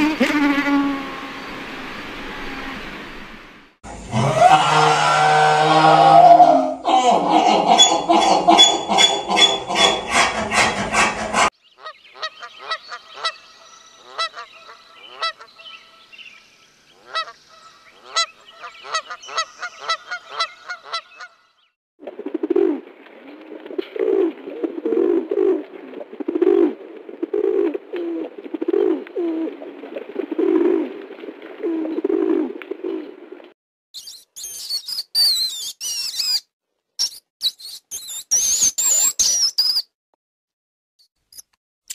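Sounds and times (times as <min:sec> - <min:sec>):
mule braying: 0:04.0 - 0:11.5
animal clicky calls: 0:34.0 - 0:36.4
rat squeaking: 0:34.0 - 0:36.4, 0:37.0 - 0:39.9.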